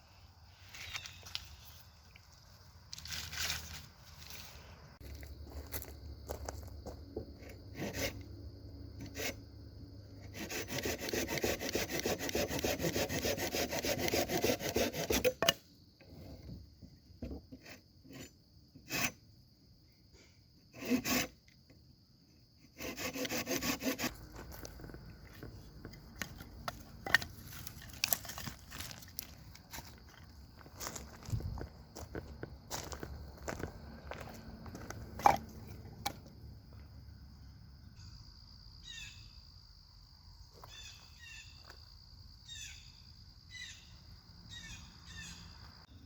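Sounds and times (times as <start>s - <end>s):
hand saw cutting wood: 7.7s - 8.2s, 9.0s - 9.4s, 10.2s - 15.6s, 17.6s - 19.2s, 20.8s - 21.4s, 22.7s - 24.2s.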